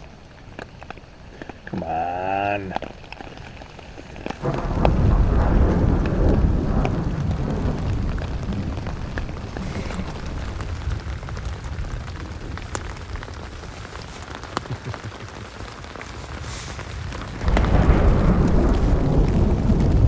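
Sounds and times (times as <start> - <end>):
distant thunder rumble: 0.0 - 20.0
rain falling: 0.0 - 20.0
loud thunderclap: 4.1 - 14.6, 16.4 - 20.0.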